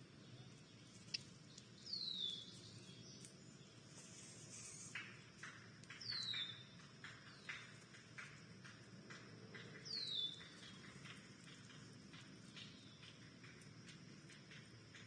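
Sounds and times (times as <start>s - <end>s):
soft scratchy sounds: 3.2s - 5.2s.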